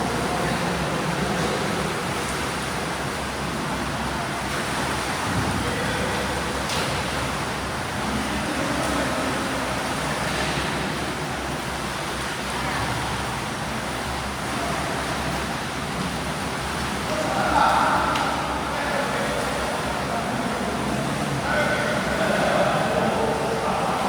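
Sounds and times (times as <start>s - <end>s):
water washing: 0.0s - 24.0s
echoing hall noise: 15.2s - 24.0s
faint distant voices: 17.0s - 24.0s.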